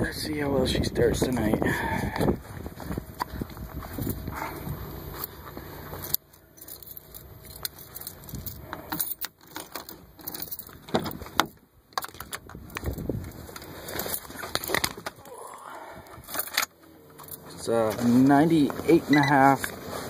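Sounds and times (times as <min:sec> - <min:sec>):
steady background hum: 0:00.0 - 0:20.0
keys jangling and clicking: 0:03.8 - 0:04.2, 0:05.1 - 0:13.1, 0:16.2 - 0:17.6.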